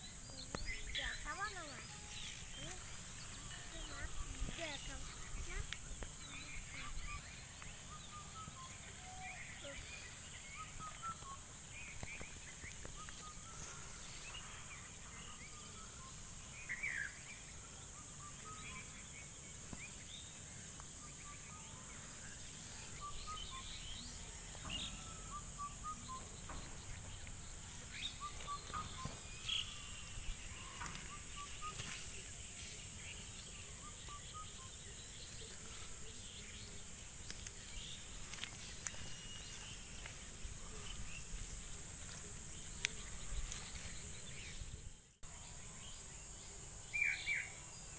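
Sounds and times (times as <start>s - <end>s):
bird chirps: 0.0s - 47.9s
high-pitched insect drone: 0.0s - 47.9s.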